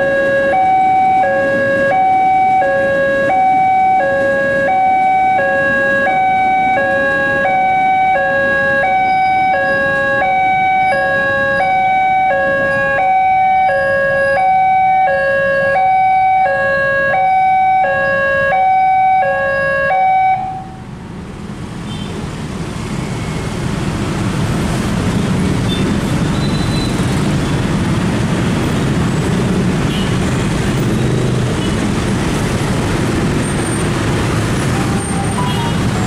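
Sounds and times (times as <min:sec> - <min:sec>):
road traffic: 0:00.0 - 0:36.0
motorcycles and cars passing: 0:21.3 - 0:36.0.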